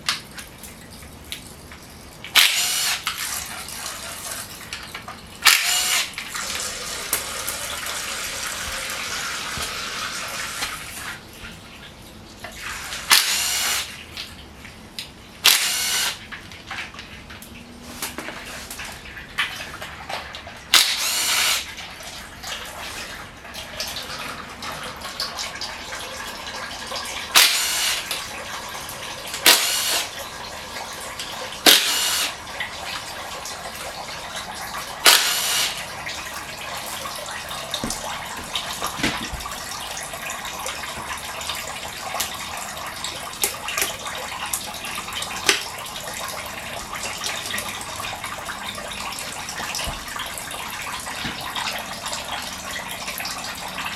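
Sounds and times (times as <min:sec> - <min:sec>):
power tool bursts: 0:02.4 - 0:03.1, 0:05.4 - 0:06.2, 0:13.0 - 0:13.9, 0:15.4 - 0:16.2, 0:20.7 - 0:21.7, 0:27.3 - 0:28.1, 0:29.4 - 0:30.1, 0:31.6 - 0:32.4, 0:35.0 - 0:35.9.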